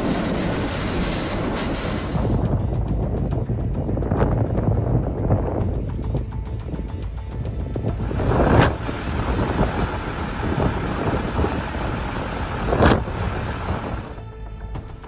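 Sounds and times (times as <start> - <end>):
loud rushing noise: 0.0 - 2.4, 7.9 - 14.2
music: 2.3 - 15.0.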